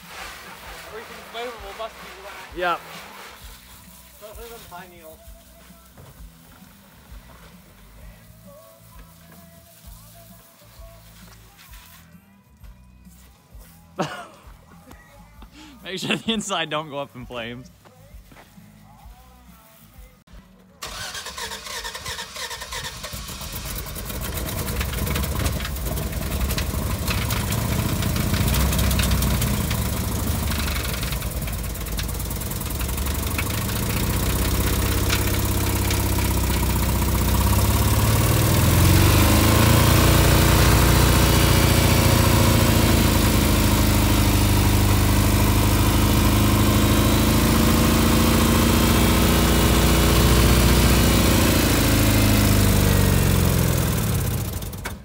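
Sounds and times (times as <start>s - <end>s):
truck engine revving: 20.8s - 55.0s.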